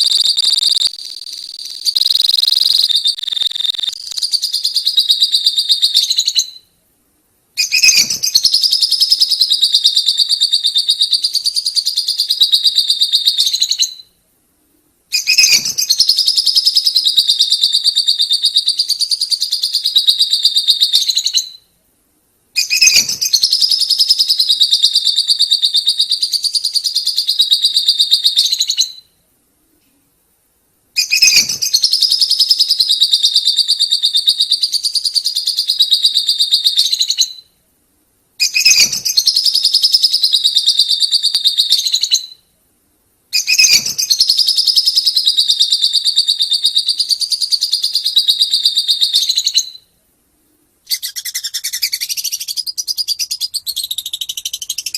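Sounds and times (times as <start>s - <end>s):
lovebirds chattering trill: 0.0s - 6.6s, 7.6s - 13.7s.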